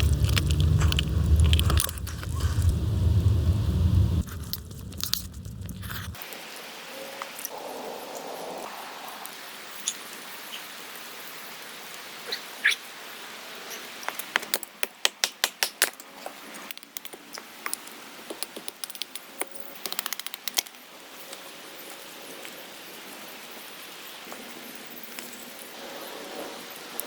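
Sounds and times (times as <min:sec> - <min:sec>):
rain hissing: 0:00.0 - 0:06.9.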